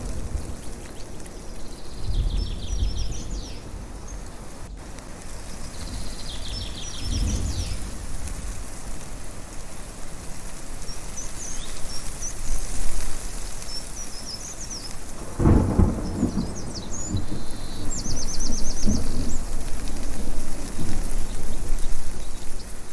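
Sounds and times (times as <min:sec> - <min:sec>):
songbirds chirping: 0:00.0 - 0:09.6, 0:10.2 - 0:22.9
thunder rumbling: 0:00.0 - 0:10.0, 0:14.9 - 0:22.9.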